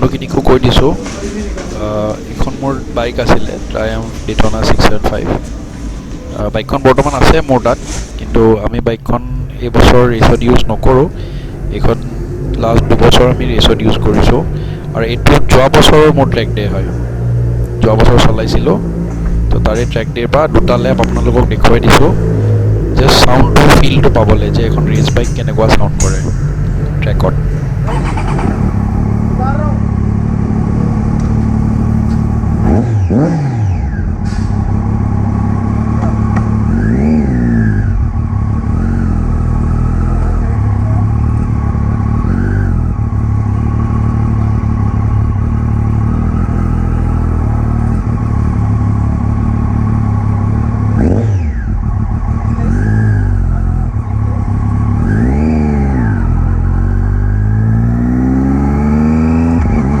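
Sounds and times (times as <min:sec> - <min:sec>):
motorcycle engine racing: 0:00.0 - 1:00.0.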